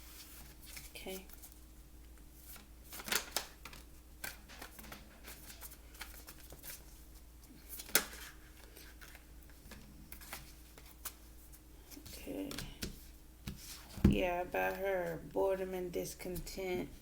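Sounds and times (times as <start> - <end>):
cards being shuffled: 2.4 - 7.0, 7.6 - 14.0.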